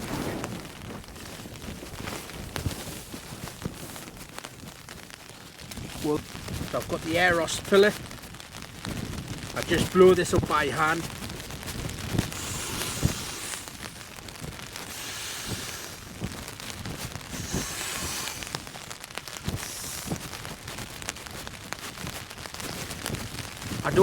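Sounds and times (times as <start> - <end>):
breathy puffs into pillow: 0.0 - 4.4, 11.6 - 22.9
rain pattering on tent fabric: 0.0 - 24.0.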